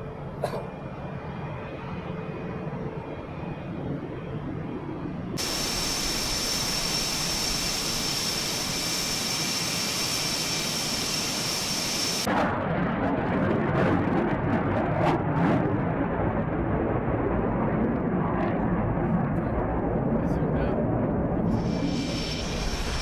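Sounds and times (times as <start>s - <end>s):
fighter jet engines roaring: 0.0s - 23.0s
high-pitched engine whine: 5.0s - 12.3s, 21.4s - 23.0s.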